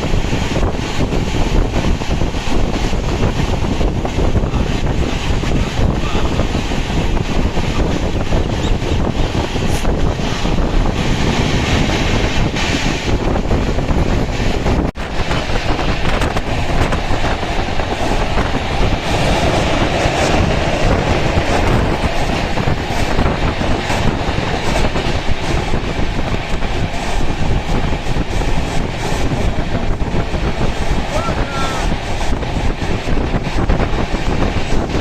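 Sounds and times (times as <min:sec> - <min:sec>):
clickety-clack of rail joints: 0:00.0 - 0:35.0
train wheels rumbling on track: 0:00.0 - 0:35.0.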